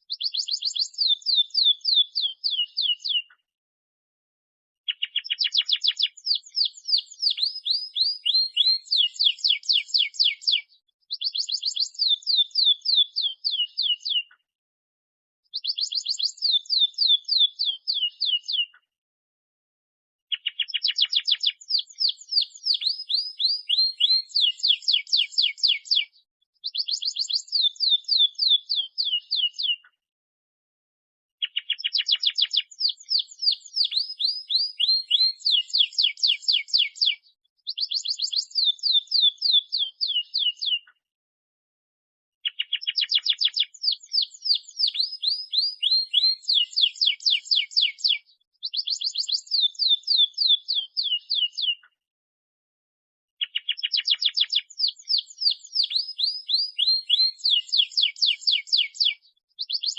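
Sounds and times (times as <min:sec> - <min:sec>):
canary singing trills: 0:00.0 - 0:03.4, 0:04.9 - 0:14.4, 0:15.5 - 0:18.8, 0:20.3 - 0:29.9, 0:31.4 - 0:41.0, 0:42.4 - 0:51.9, 0:53.4 - 0:59.9.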